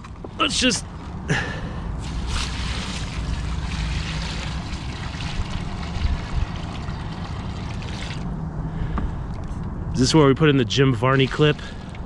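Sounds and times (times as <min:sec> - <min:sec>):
water poured onto ground: 0:02.0 - 0:08.3, 0:11.1 - 0:12.0.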